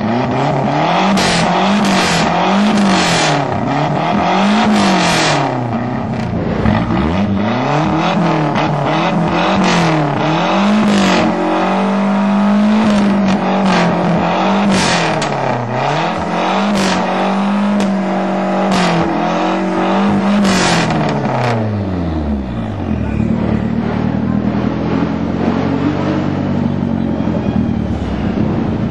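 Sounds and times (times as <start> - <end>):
car engine revving: 0.0 - 28.9
engine cracks: 12.9 - 18.0.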